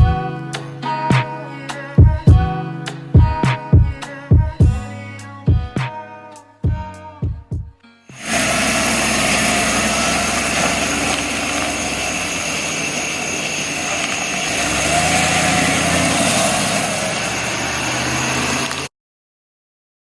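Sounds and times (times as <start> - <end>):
engine running: 8.1 - 18.9.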